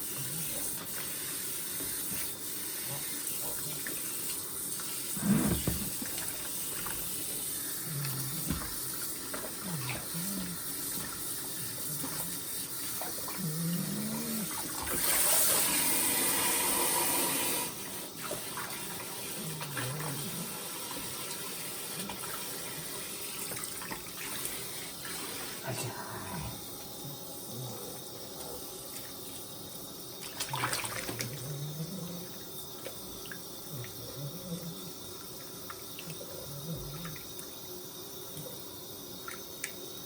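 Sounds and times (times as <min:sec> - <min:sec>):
water running: 0:00.0 - 0:40.0.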